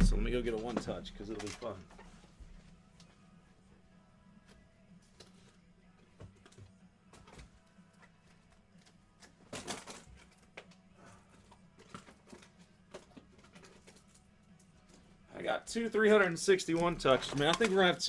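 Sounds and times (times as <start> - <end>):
low steady hum: 0.0 - 1.3.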